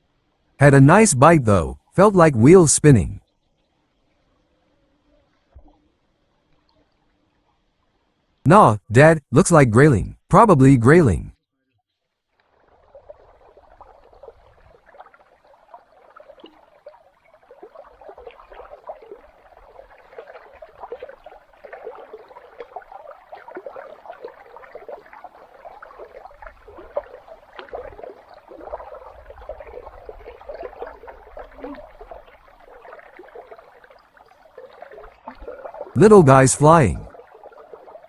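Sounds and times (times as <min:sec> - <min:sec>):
river water gurgling: 0:12.4 - 0:38.0.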